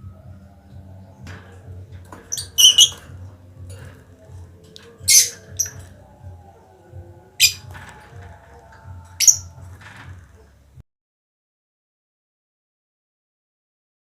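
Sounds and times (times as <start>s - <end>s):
small birds chirping: 2.1s - 3.2s, 4.8s - 6.1s.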